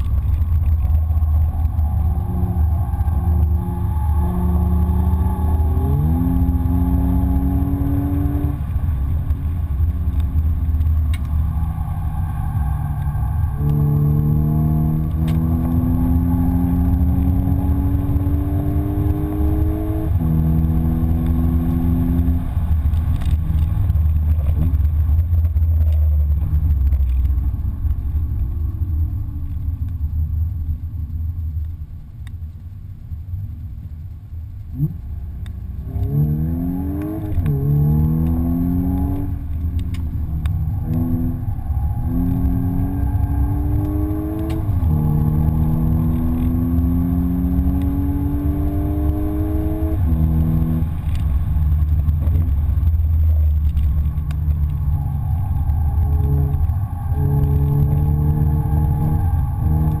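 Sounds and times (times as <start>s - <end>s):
car engine accelerating: 0.0s - 60.0s
low road rumble: 0.0s - 60.0s.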